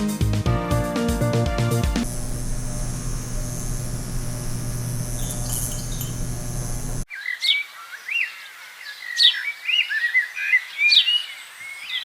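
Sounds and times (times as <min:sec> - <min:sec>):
steady low hum: 0:02.0 - 0:07.1
songbird singing: 0:07.1 - 0:12.0.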